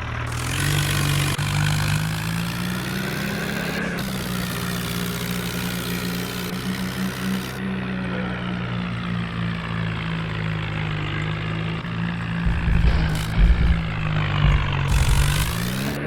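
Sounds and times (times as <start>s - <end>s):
tractor engine running: 0.0s - 16.0s
low rumbling thumps: 12.4s - 16.0s.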